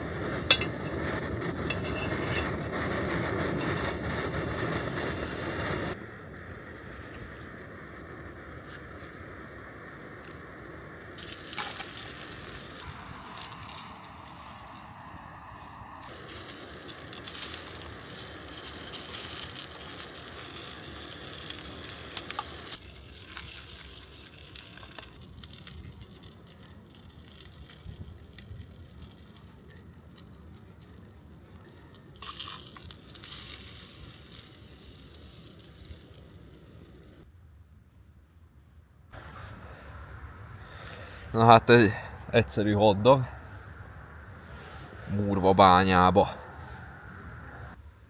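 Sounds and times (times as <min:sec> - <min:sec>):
sausages sizzling: 0:11.2 - 0:31.3, 0:32.2 - 0:37.2.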